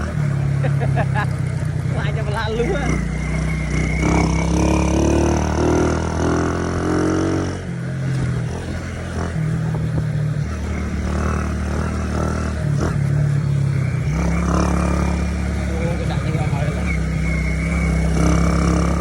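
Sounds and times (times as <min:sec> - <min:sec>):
motorbike engine running: 0:00.0 - 0:19.0.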